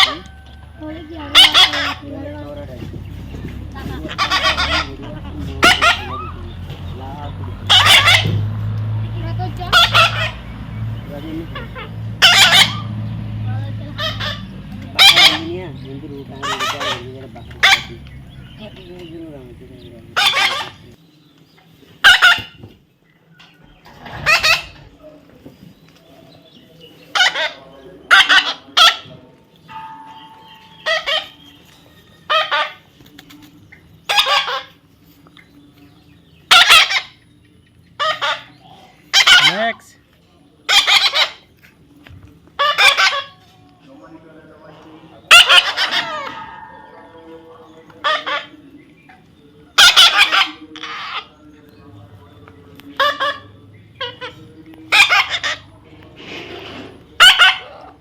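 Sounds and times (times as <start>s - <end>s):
parrot squawking: 1.2s - 2.2s, 3.8s - 6.8s, 7.6s - 8.4s, 9.6s - 10.5s, 11.5s - 13.1s, 13.8s - 18.8s, 19.4s - 21.0s, 22.0s - 22.6s, 24.0s - 24.9s, 27.1s - 29.1s, 30.6s - 31.5s, 32.3s - 32.8s, 34.1s - 34.8s, 36.5s - 37.2s, 38.0s - 39.9s, 40.7s - 41.4s, 42.6s - 43.4s, 45.3s - 48.6s, 49.8s - 51.4s, 53.0s - 55.7s, 57.1s - 58.0s.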